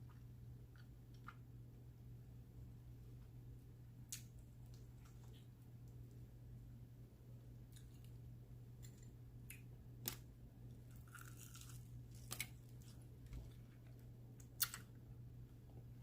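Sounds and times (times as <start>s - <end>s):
low steady hum: 0.0s - 16.0s
crunchy bites and chewing: 10.9s - 13.7s.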